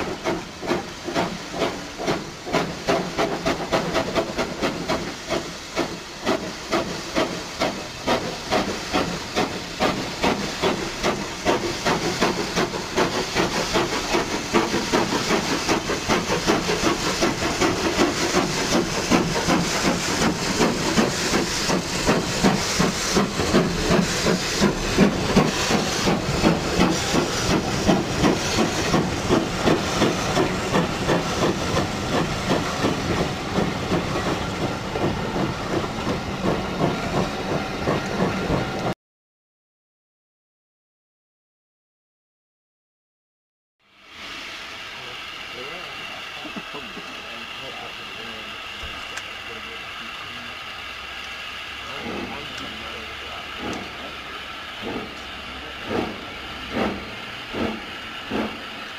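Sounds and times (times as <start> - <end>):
steam hissing: 0.0 - 38.9, 43.8 - 58.9
steam locomotive exhaust beats: 0.0 - 39.0, 43.8 - 58.9.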